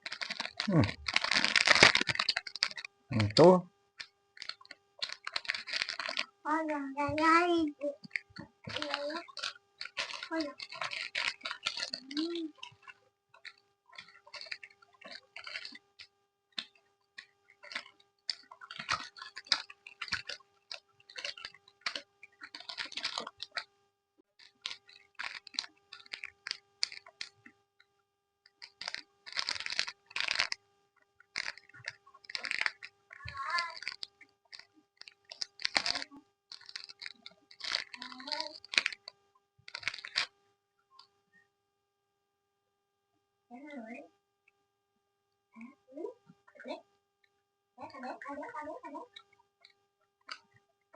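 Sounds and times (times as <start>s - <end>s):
chewing gummy candy: 0.0s - 23.7s, 24.4s - 27.5s, 28.5s - 30.6s, 31.3s - 40.3s, 47.9s - 50.6s
faint steady hum: 0.0s - 50.9s.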